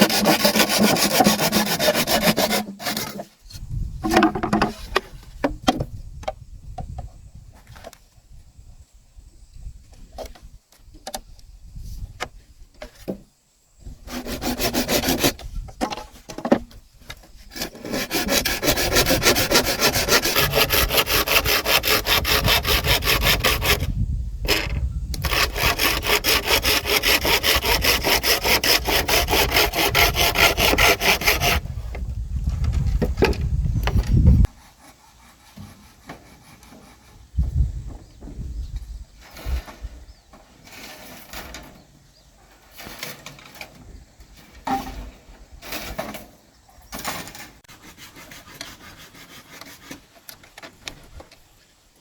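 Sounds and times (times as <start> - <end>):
hand saw cutting wood: 0.0 - 3.4, 13.8 - 16.1, 17.3 - 23.9, 24.5 - 31.7, 33.2 - 37.3, 47.0 - 50.4
light knocks and scrapes: 3.0 - 5.9.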